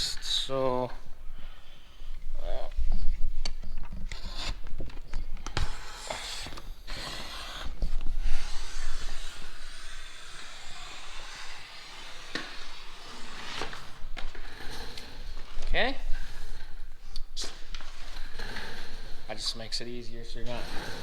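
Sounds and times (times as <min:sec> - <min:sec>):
vinyl film rustling and rubbing: 0:02.2 - 0:14.5.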